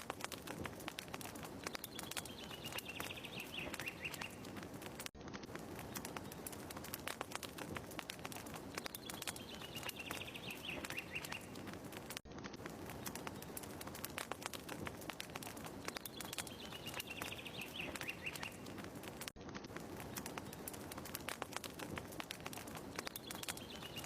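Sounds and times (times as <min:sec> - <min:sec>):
fireplace crackling: 0:00.0 - 0:24.0
bird trill: 0:01.8 - 0:04.5, 0:08.9 - 0:11.6, 0:16.0 - 0:18.7, 0:23.1 - 0:24.0.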